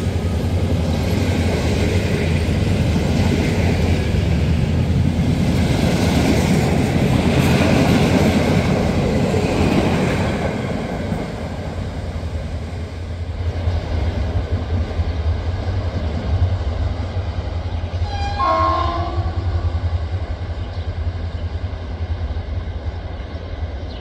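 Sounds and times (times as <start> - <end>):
train horn blast: 18.0 - 19.8.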